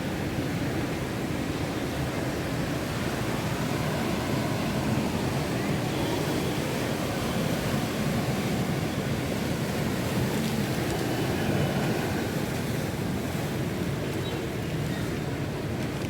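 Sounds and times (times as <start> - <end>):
rough sea surf: 0.0 - 16.0
strong wind: 0.0 - 16.0.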